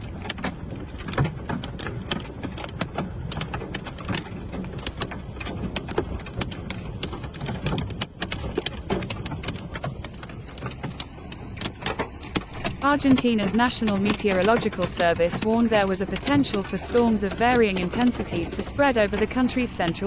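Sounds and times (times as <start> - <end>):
heavy rain rushing: 0.0 - 20.0.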